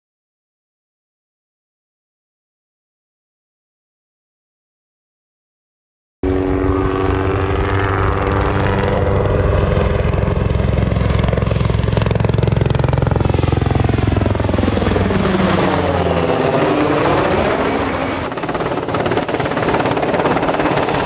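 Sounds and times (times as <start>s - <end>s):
helicopter rotor beat: 6.2s - 21.0s
turbine whine: 6.2s - 21.0s.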